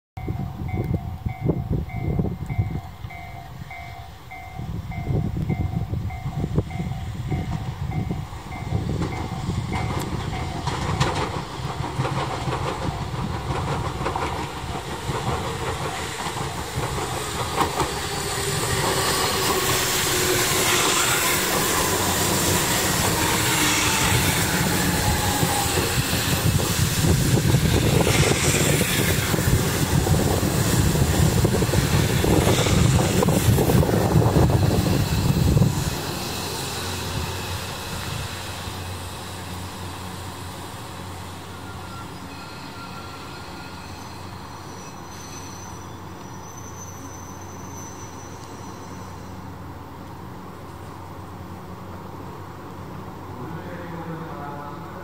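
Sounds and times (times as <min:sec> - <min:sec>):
train wheels clattering: 0:07.0 - 0:39.0
train whine falling in pitch: 0:15.2 - 0:39.4.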